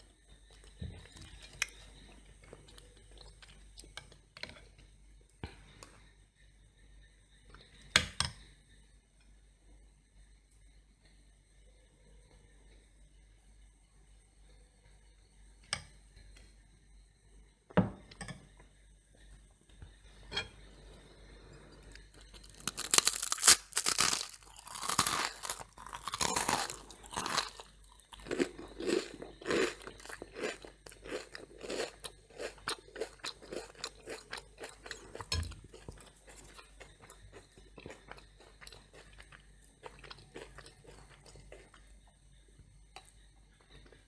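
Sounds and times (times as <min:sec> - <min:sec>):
toast crunching and chewing: 0:21.9 - 0:41.9.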